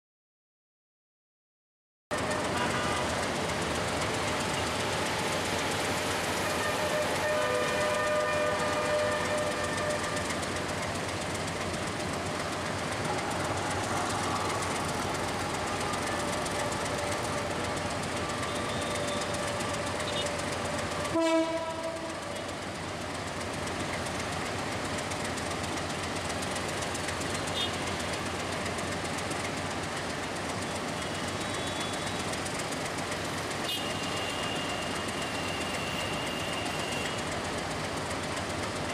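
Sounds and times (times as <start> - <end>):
train engine and rail rumble: 2.1 - 38.9
locomotive horn toot: 2.3 - 3.4, 5.8 - 10.8, 15.8 - 22.7, 27.5 - 27.9, 31.2 - 32.2, 33.6 - 37.3.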